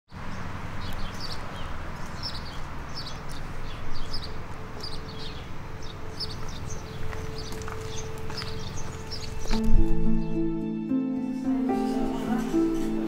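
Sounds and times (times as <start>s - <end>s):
small birds chirping: 0.1s - 10.5s.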